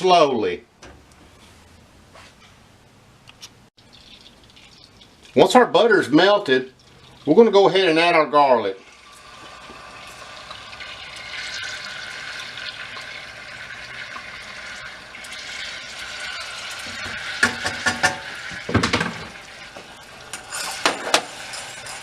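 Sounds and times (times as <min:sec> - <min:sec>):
garlic sizzling in butter: 0:08.8 - 0:22.0
utensil scraping a pan: 0:15.4 - 0:22.0.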